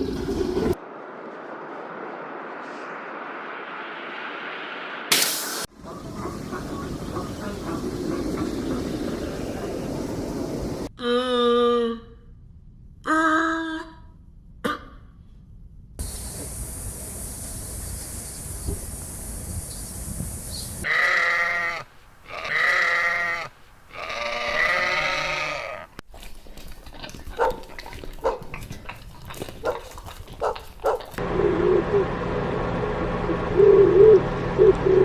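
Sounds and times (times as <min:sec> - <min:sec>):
goat bleating: 0:20.8 - 0:26.0.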